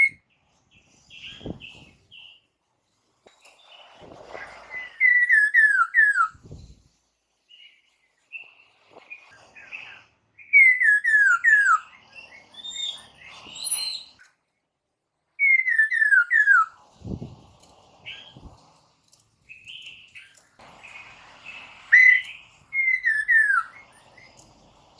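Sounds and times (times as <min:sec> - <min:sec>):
bird whistling descending notes: 0:04.7 - 0:06.4, 0:10.5 - 0:11.9, 0:15.4 - 0:16.7, 0:21.9 - 0:23.9.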